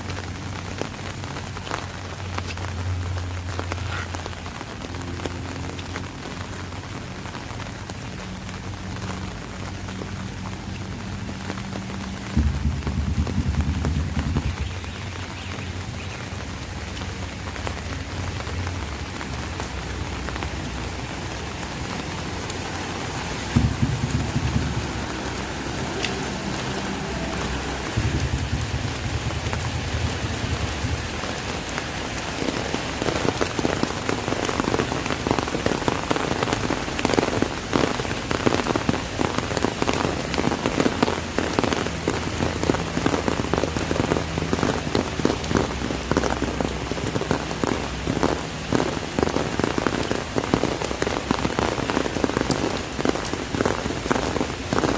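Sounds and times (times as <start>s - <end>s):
rain on an umbrella: 0.0s - 54.9s
low rumble: 9.4s - 16.6s, 19.6s - 32.4s.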